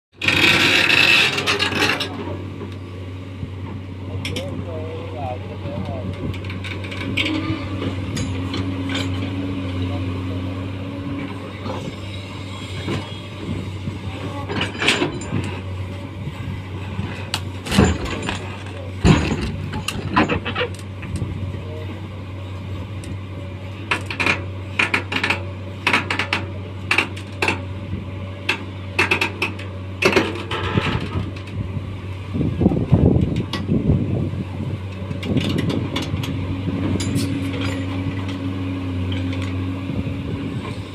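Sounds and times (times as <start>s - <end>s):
diesel engine running: 0.1s - 40.9s
machine knocks and clanks: 16.9s - 21.3s, 28.4s - 31.6s.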